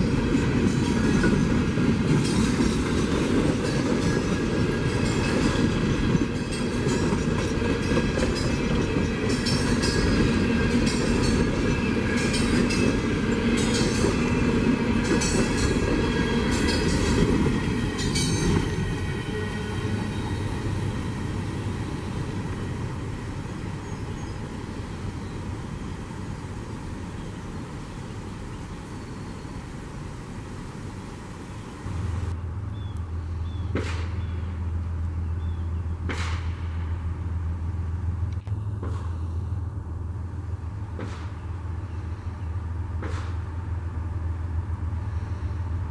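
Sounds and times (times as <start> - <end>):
wheels clicking over rail joints: 0.0 - 32.4
train rumbling past: 0.0 - 45.9.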